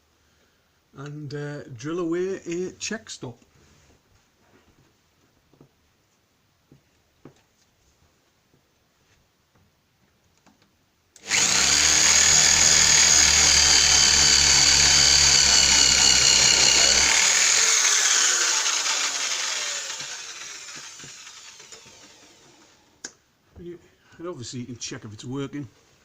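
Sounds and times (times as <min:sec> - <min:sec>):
power drill boring into wood: 0:11.2 - 0:22.9.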